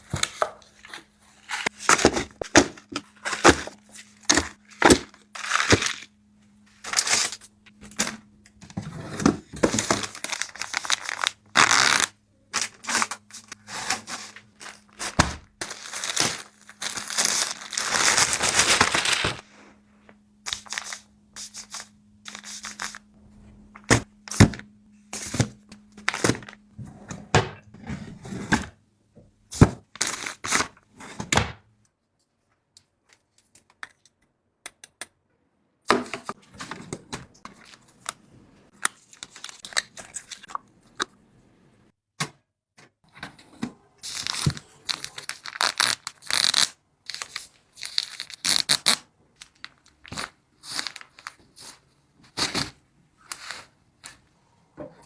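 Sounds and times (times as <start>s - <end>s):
wrappers tearing and crinkling: 4.3s - 6.1s, 6.9s - 7.4s, 9.8s - 19.4s, 20.5s - 23.0s, 38.7s - 40.5s, 44.0s - 51.8s.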